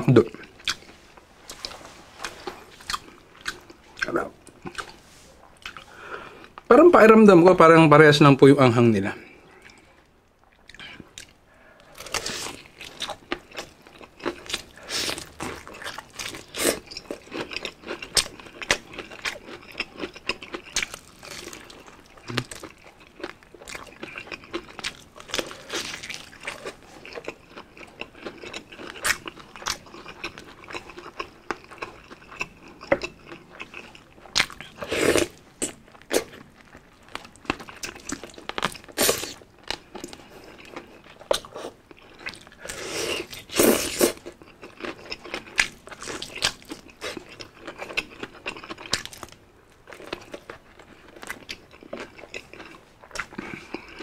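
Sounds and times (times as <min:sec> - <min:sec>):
wet chewing: 0:00.4 - 0:06.7, 0:09.4 - 0:54.0
fried chicken crunching: 0:11.9 - 0:54.0.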